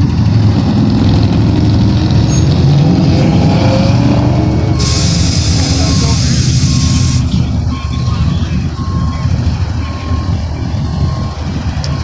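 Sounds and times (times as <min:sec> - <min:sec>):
car engines rumbling: 0:00.0 - 0:12.0
loud hiss: 0:04.8 - 0:07.3.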